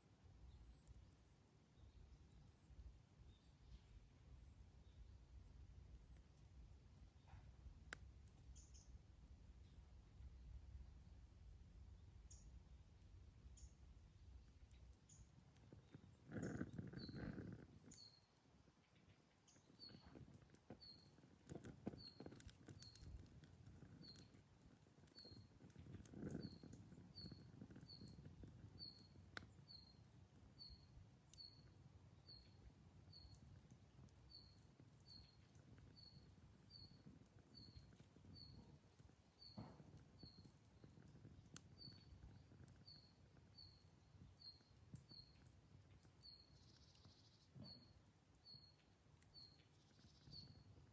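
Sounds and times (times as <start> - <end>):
faint campfire crackling: 0.0 - 50.9
small animal chirping: 14.7 - 18.3, 18.9 - 50.8.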